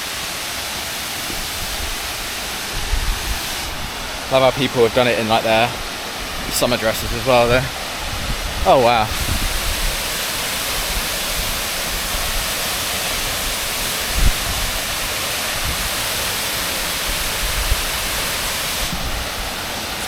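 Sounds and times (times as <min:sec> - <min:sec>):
waterfall crashing: 0:00.0 - 0:20.0.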